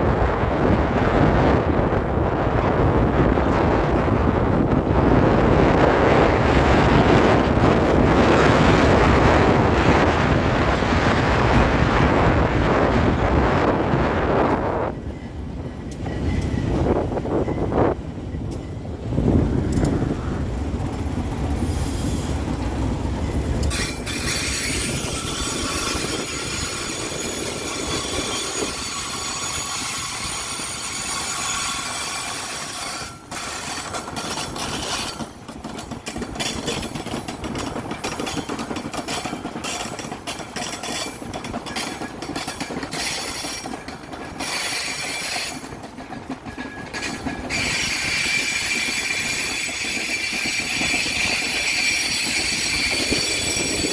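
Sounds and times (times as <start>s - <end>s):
train rolling past: 0.0s - 53.9s
wheels clacking over rail joints: 2.8s - 53.9s
wheel squeal on rails: 21.5s - 53.9s.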